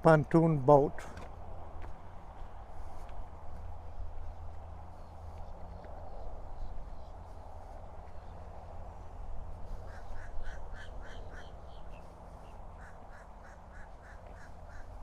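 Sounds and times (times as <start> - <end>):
duck quacking: 12.8 - 15.0.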